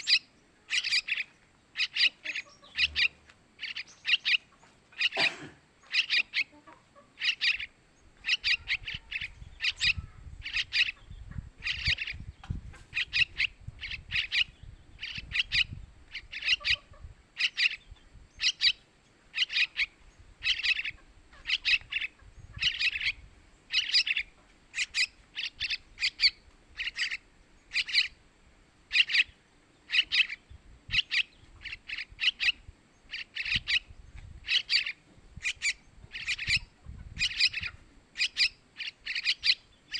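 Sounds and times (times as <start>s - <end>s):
bird chick chirping: 0.0s - 28.2s, 28.9s - 39.9s.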